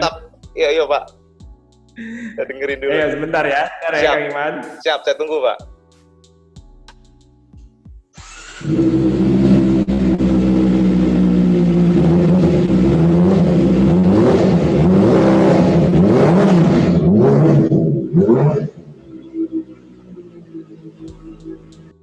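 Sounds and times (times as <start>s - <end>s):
motorcycle engine revving: 8.2s - 22.0s.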